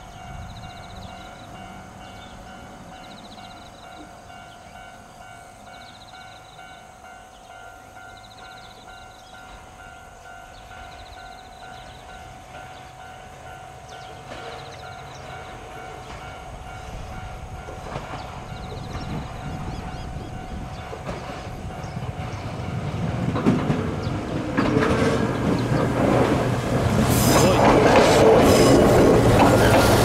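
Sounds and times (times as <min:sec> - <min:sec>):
electric train approaching: 0:00.0 - 0:30.0
wheels clattering over rail joints: 0:20.7 - 0:30.0.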